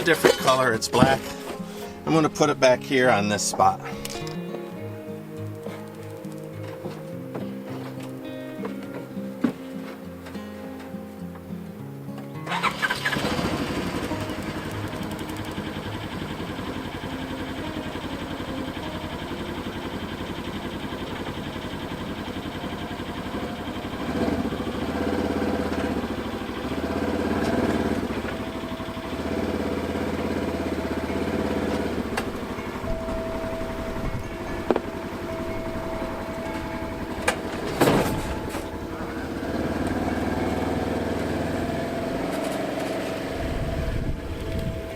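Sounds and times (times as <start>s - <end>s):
music: 0.0s - 44.9s
engine starting and revving: 12.5s - 44.9s.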